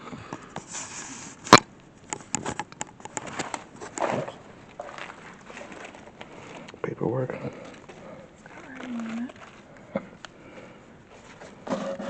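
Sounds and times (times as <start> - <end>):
footsteps clicking and scuffing: 3.0 - 6.8.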